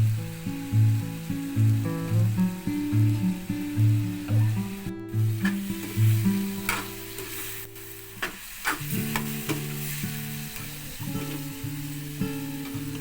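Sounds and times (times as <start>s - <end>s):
food sizzling in a pan: 0.0s - 13.0s
soft acoustic guitar music: 0.0s - 13.0s
utensil scraping pan: 5.4s - 7.5s, 8.2s - 10.0s.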